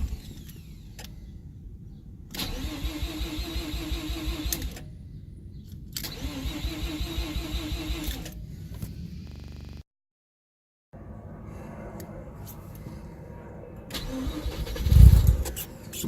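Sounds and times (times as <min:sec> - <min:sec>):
engine cranking on starter: 0:02.3 - 0:04.9, 0:06.0 - 0:08.4, 0:13.9 - 0:16.0.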